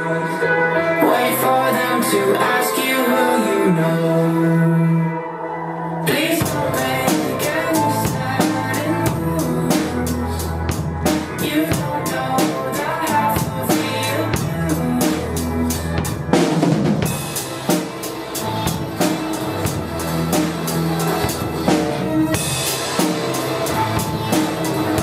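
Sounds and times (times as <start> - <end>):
backing track bass and keyboard: 0.0 - 25.0
drum kit playing: 6.1 - 25.0.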